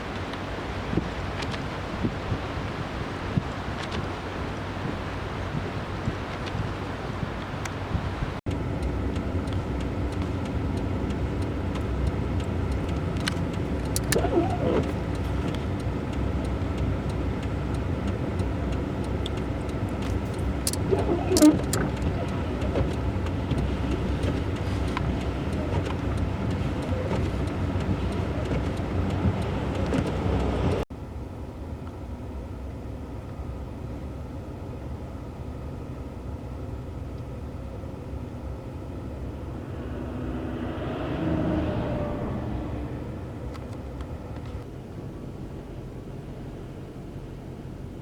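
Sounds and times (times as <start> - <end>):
car running: 0.0 - 48.0.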